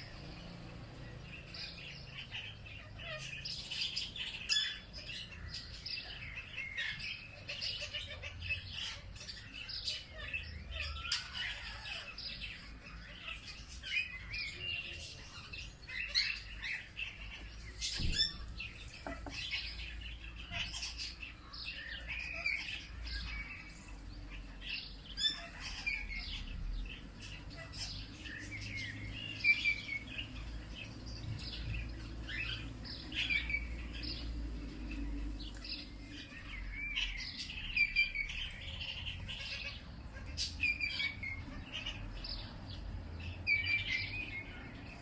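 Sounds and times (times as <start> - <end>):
birds chirping and singing: 0.0 - 45.0.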